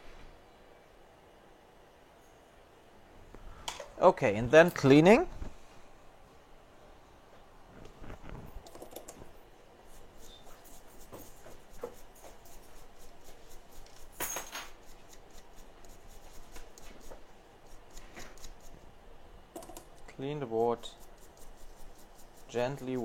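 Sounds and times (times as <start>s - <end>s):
hand tools scratching circuit board: 9.9s - 18.8s, 20.4s - 23.0s.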